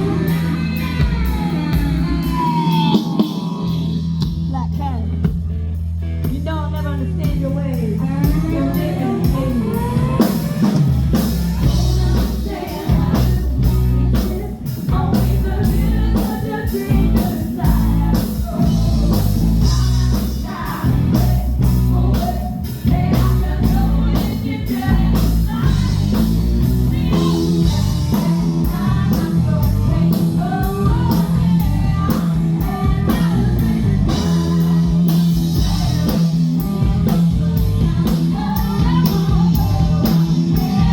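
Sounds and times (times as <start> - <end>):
lead singer singing: 0.0 - 4.3, 6.3 - 40.9
bass guitar: 0.0 - 40.9
drum kit: 0.0 - 40.9
electric guitar: 0.0 - 40.9.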